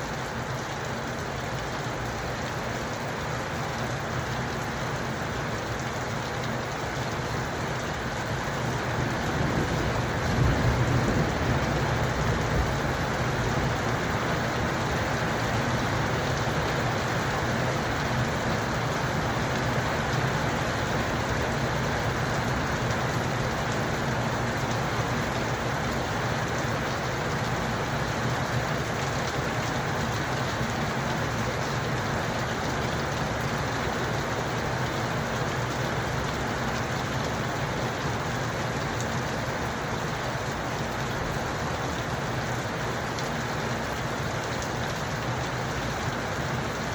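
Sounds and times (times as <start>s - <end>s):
rain falling: 0.0s - 46.9s
thunder rumbling: 9.2s - 12.9s.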